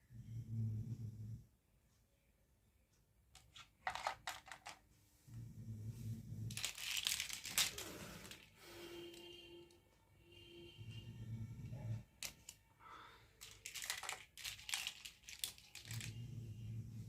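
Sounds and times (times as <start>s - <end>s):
plastic toy pieces clicking: 3.4s - 4.8s, 6.5s - 8.5s, 12.2s - 12.6s, 13.4s - 16.2s
plastic packaging crinkling: 6.5s - 8.5s, 13.4s - 16.2s.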